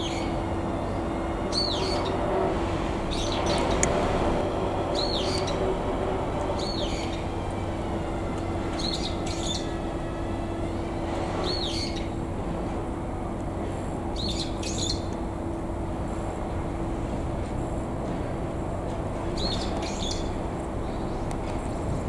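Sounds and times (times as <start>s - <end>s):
bird high chirp: 0.0s - 0.4s, 1.5s - 2.2s, 3.1s - 3.8s, 5.0s - 5.7s, 6.6s - 7.3s, 8.7s - 9.8s, 11.4s - 12.1s, 14.2s - 15.1s, 19.4s - 21.2s
low hum and rumble: 0.0s - 22.0s.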